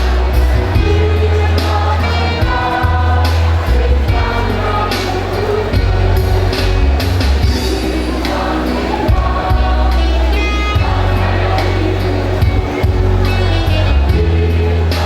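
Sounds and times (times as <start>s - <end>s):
choir singing: 0.0s - 15.0s
instrumental accompaniment with bass: 0.0s - 15.0s.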